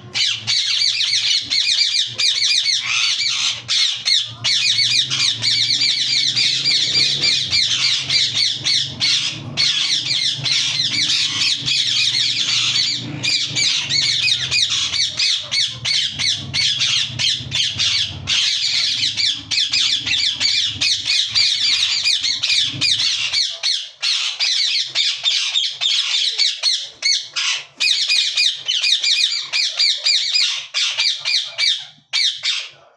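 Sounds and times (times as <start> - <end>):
parakeet squawking: 0.0 - 32.8
low hum: 4.2 - 23.1.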